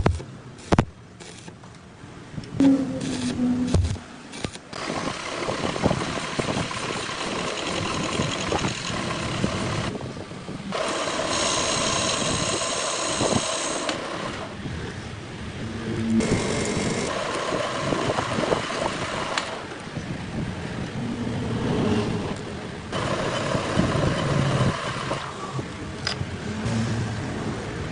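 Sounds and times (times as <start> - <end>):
high ringing whine: 2.6 - 4.5
metal lathe cutting metal: 4.8 - 9.9, 10.8 - 14.5, 23.0 - 25.5.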